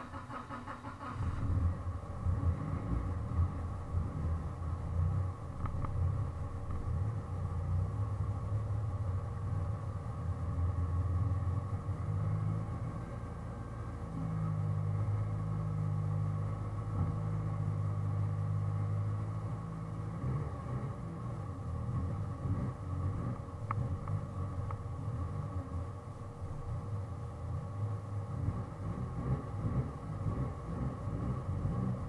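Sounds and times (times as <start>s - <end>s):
car engine droning: 0.0s - 32.0s.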